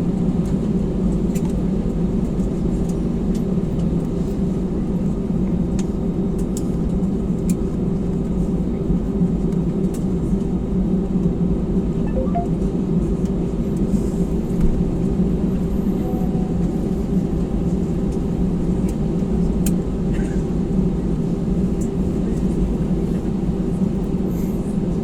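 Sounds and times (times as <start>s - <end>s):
aircraft engines rumbling in cabin: 0.0s - 25.0s.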